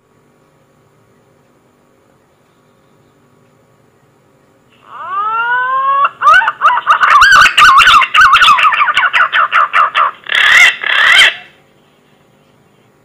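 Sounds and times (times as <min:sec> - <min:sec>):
pigeon whistling call: 0:04.9 - 0:11.5.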